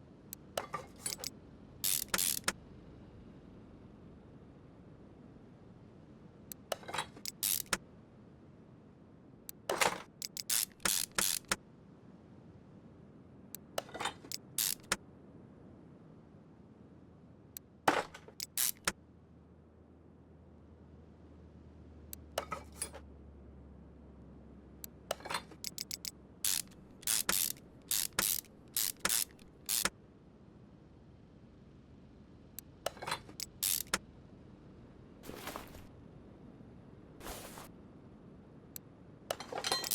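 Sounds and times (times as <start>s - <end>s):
short clicks and clatters: 0.4s - 2.6s, 6.5s - 7.8s, 9.5s - 11.6s, 13.6s - 15.0s, 17.9s - 19.0s, 25.1s - 29.9s, 32.6s - 34.0s, 39.3s - 39.9s.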